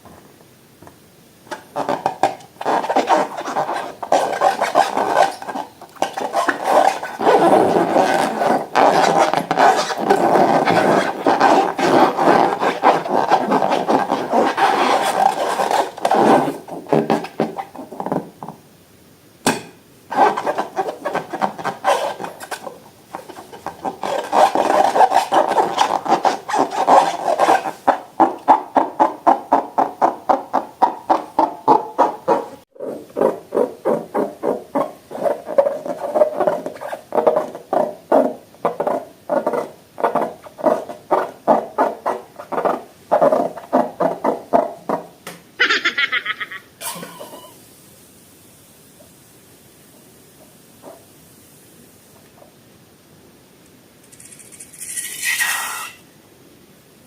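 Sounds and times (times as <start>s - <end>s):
slime scraping and rubbing: 1.5s - 18.1s, 20.1s - 38.2s, 54.1s - 56.0s.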